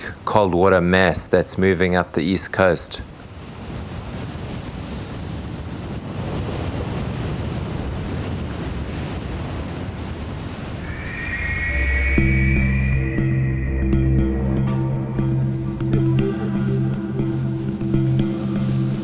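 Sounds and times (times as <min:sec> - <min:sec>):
wind: 0:00.0 - 0:15.7
waves rushing: 0:10.5 - 0:14.5
music: 0:10.9 - 0:19.0.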